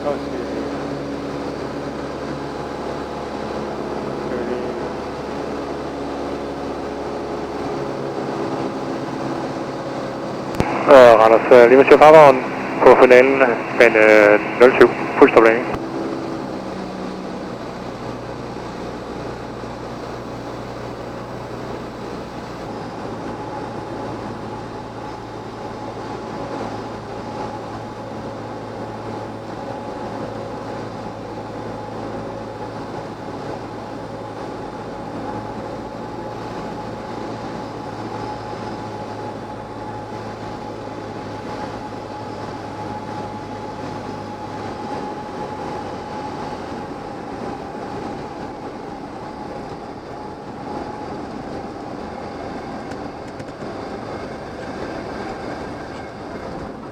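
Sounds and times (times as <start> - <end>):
airplane engine drone in cabin: 0.0 - 56.9.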